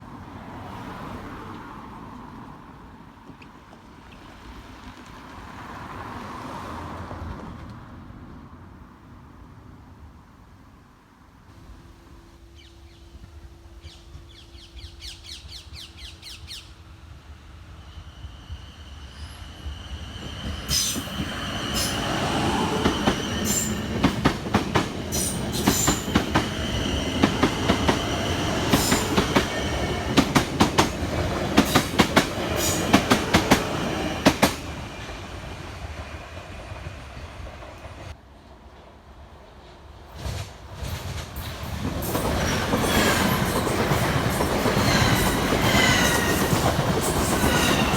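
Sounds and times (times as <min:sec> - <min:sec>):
train wheels clattering over rail joints: 0:20.2 - 0:35.2, 0:40.1 - 0:47.9.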